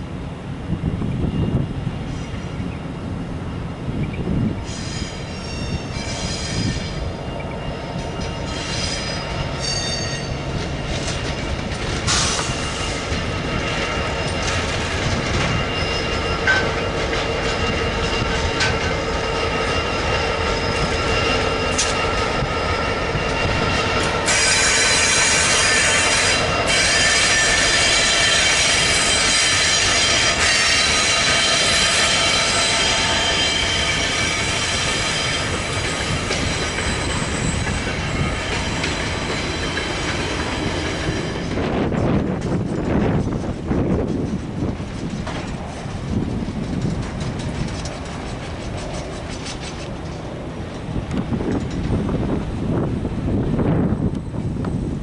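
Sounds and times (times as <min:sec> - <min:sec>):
diesel locomotive passing: 0:00.0 - 0:55.0
train wheel squeal: 0:01.2 - 0:03.0, 0:03.9 - 0:52.9.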